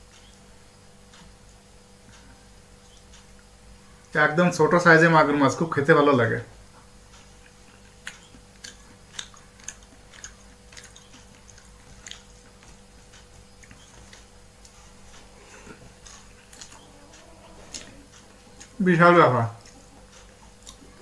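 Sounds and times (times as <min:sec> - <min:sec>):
person chewing food: 0:01.0 - 0:04.1, 0:06.6 - 0:18.9, 0:19.5 - 0:21.0
mouth clicks and smacks: 0:07.1 - 0:18.8.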